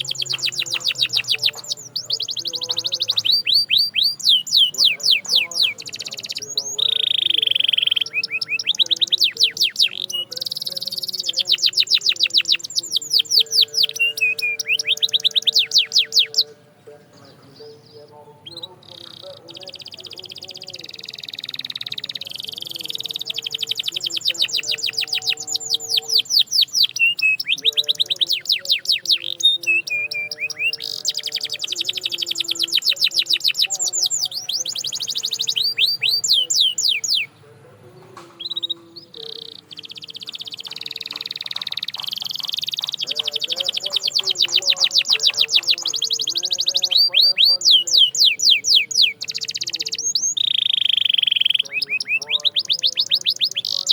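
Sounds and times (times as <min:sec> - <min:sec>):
canary singing trills: 0:00.0 - 0:53.9.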